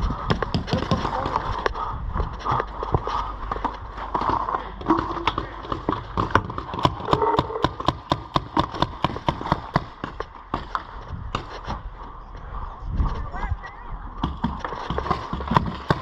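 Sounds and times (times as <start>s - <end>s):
paintball guns firing: 5.2s - 11.5s, 14.2s - 16.0s.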